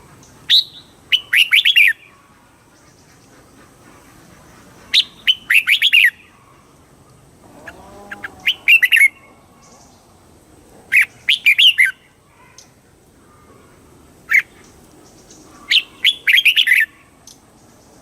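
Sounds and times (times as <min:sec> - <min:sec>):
bird singing warbled notes: 0:07.6 - 0:10.0, 0:14.3 - 0:17.4.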